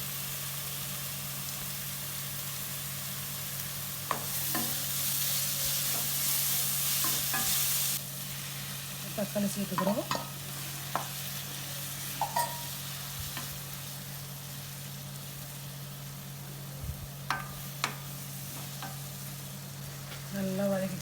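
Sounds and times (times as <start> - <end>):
food sizzling in hot oil: 0.0 - 21.0
spoon clinking against pan: 12.2 - 12.7.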